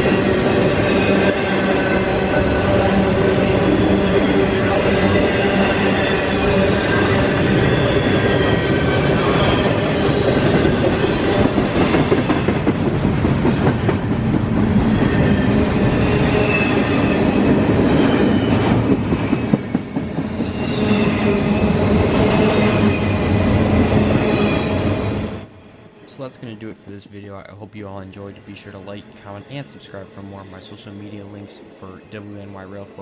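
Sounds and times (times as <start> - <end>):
train wheels rumbling on track: 0.0 - 25.6.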